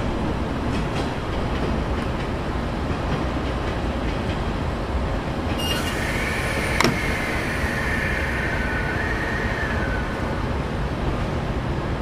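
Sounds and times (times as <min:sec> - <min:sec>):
steady train noise: 0:00.0 - 0:12.0
faint high squeal: 0:05.5 - 0:11.7.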